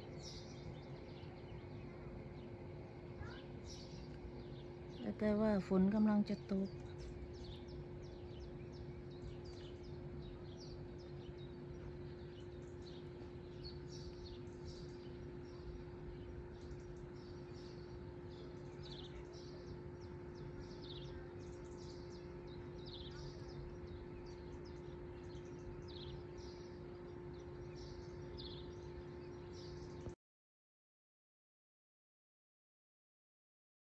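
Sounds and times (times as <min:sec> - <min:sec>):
faint background rumble: 0:00.0 - 0:26.6
low hum: 0:00.0 - 0:30.2
songbirds chirping: 0:00.0 - 0:30.2.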